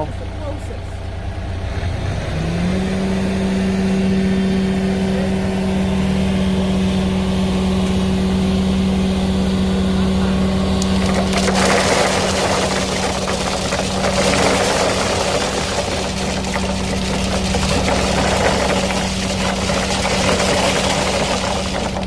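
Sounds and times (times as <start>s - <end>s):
engine revving: 1.6s - 22.0s
rough scraping noise: 10.9s - 22.0s.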